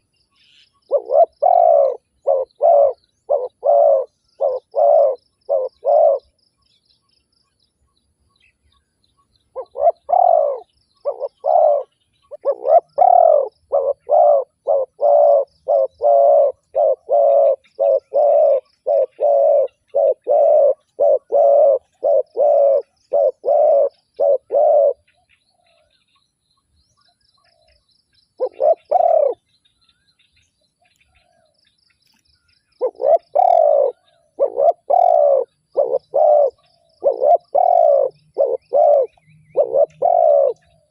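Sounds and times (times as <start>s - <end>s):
faint high chirping: 0.0s - 40.9s
dove cooing: 0.8s - 6.4s, 9.6s - 25.1s, 28.4s - 29.4s, 32.8s - 40.9s.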